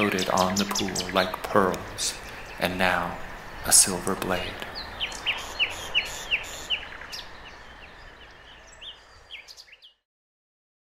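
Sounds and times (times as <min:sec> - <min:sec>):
bird chirping: 0:00.0 - 0:10.0
outdoor background hiss: 0:00.0 - 0:10.0.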